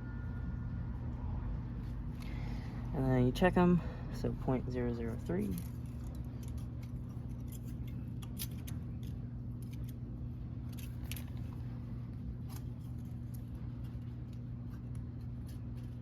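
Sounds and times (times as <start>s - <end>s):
steady low hum: 0.0s - 16.0s
metallic clicks and scrapes: 5.0s - 10.0s, 10.6s - 11.6s.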